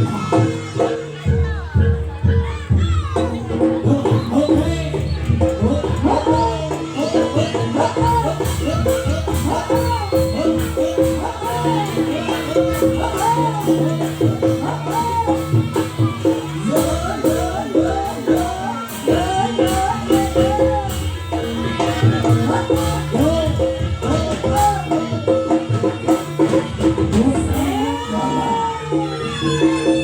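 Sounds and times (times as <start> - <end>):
gamelan music: 0.0 - 30.0
regular jingling beat: 4.3 - 25.4.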